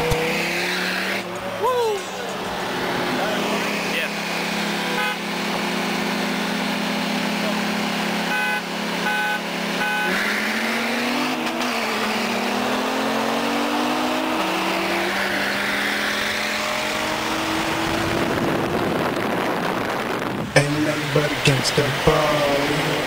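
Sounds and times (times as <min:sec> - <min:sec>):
sports car accelerating: 0:00.0 - 0:23.0
short beeps: 0:08.3 - 0:10.2.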